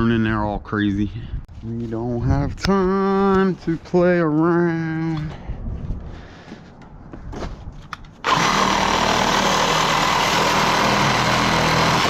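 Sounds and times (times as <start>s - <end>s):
reciprocating saw cutting metal: 8.2s - 12.0s.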